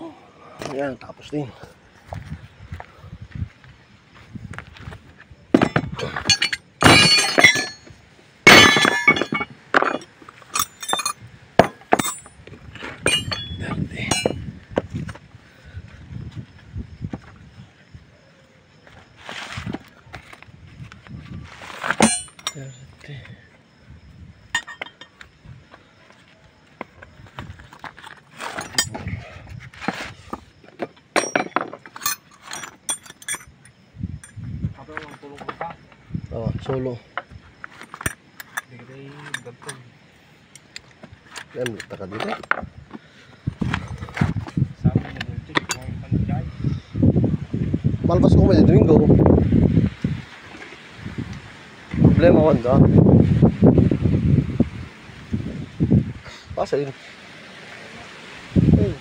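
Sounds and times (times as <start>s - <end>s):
metal jangling rattles: 5.6s - 7.9s, 8.5s - 12.4s, 13.0s - 14.4s, 22.0s - 22.9s, 28.4s - 29.1s, 31.2s - 34.4s, 37.8s - 39.8s
metal objects clinking: 5.6s - 7.9s, 8.5s - 12.4s, 13.0s - 14.4s, 21.8s - 22.9s, 24.5s - 25.2s, 28.0s - 29.1s, 30.8s - 34.4s, 37.7s - 39.8s.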